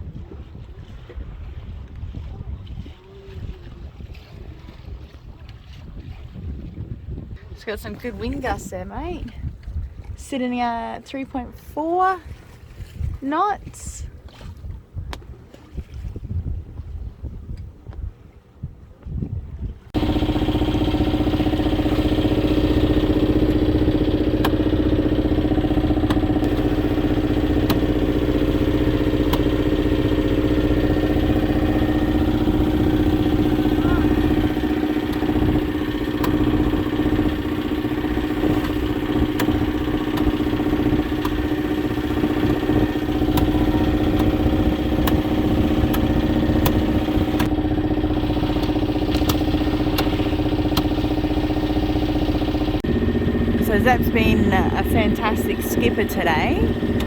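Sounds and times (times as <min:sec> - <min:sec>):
boat engine humming: 0:07.4 - 0:16.1, 0:19.8 - 0:57.0.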